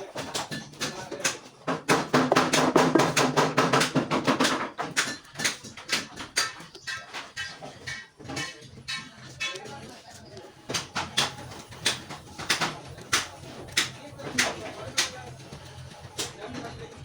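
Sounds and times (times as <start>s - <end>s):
sharp knocks: 1.7s - 6.6s.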